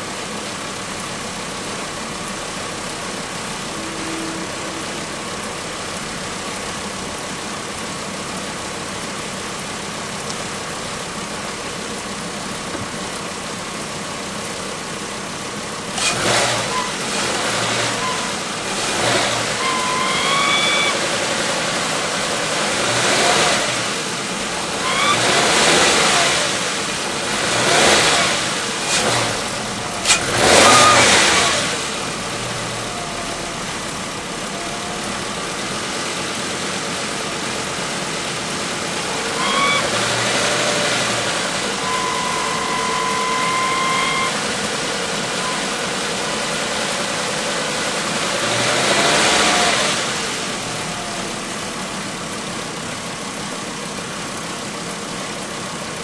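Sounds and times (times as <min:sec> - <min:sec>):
car engine and road noise: 0:00.0 - 0:56.0
high squeal: 0:03.4 - 0:06.2, 0:16.6 - 0:18.5, 0:19.3 - 0:21.3, 0:24.8 - 0:25.5, 0:30.0 - 0:33.7, 0:39.2 - 0:46.3.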